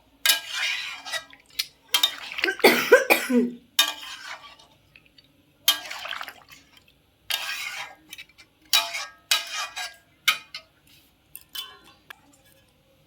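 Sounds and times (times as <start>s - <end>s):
pots and utensils clattering: 1.9s - 4.5s, 7.3s - 10.7s, 11.4s - 12.0s.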